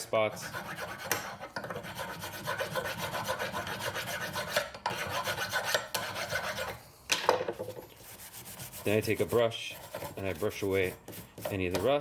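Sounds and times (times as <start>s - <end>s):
hand file rasping on metal: 0.2s - 6.8s, 8.0s - 12.0s.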